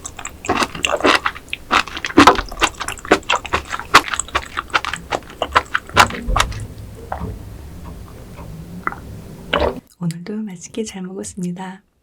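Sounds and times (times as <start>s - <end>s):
wet chewing mouth clicks: 0.0s - 7.2s.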